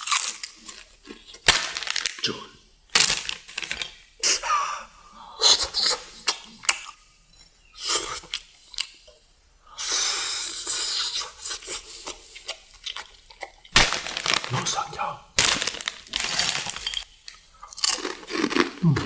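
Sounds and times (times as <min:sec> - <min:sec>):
crunchy chewing: 0:00.0 - 0:02.4, 0:10.4 - 0:19.0.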